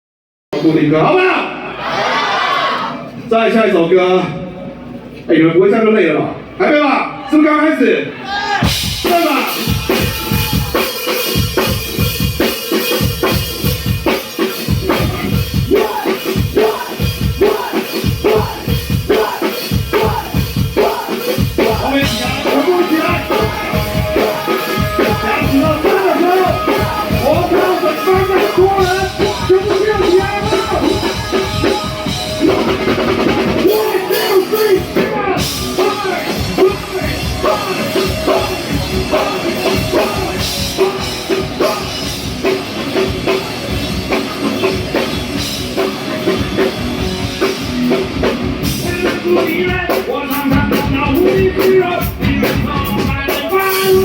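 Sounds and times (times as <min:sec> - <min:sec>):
rock band playing: 0:00.6 - 0:03.3, 0:08.2 - 0:54.0
drum kit beat: 0:08.5 - 0:54.0
person singing: 0:15.7 - 0:32.9, 0:33.6 - 0:42.1.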